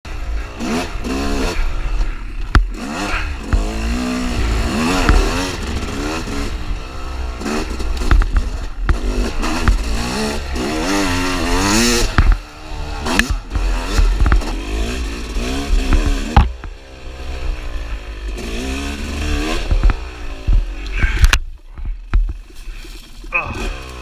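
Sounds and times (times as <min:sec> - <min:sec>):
dirt bike engine revving: 0:00.1 - 0:24.0
sharp knocks and clatter: 0:07.4 - 0:10.2, 0:11.6 - 0:16.8, 0:19.5 - 0:23.9.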